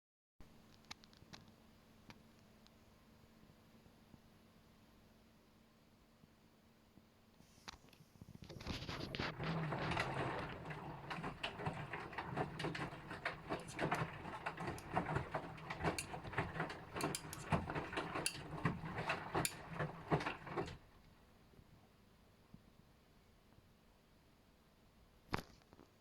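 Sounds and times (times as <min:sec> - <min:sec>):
laundry tumbling with knocks: 0:08.6 - 0:20.9
washing machine drum turning: 0:09.1 - 0:20.8.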